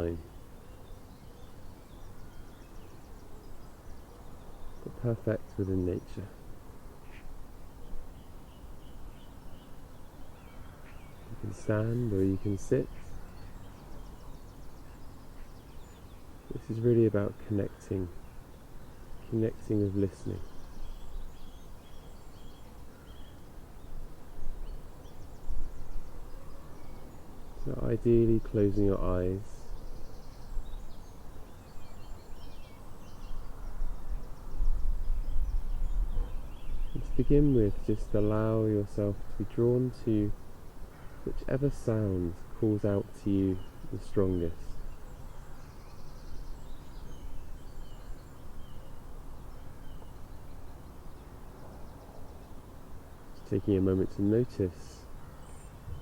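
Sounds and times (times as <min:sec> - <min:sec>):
faint bird chirps: 0:00.0 - 0:56.0.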